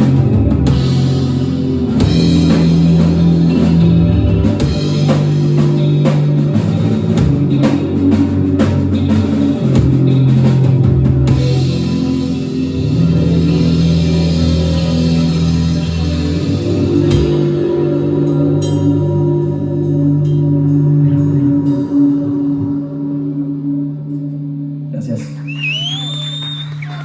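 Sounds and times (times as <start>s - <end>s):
rock band playing: 0.0s - 19.4s, 25.4s - 27.0s
held low guitar notes: 0.0s - 24.9s.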